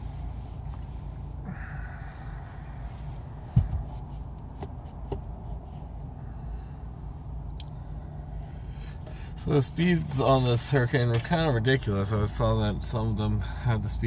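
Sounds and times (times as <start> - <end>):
road and engine rumble in car: 0.0 - 14.0
thump: 3.5 - 3.9.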